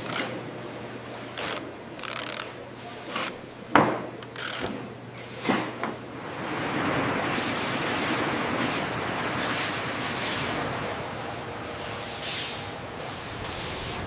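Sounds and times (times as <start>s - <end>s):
steady rushing noise: 13.2s - 14.0s.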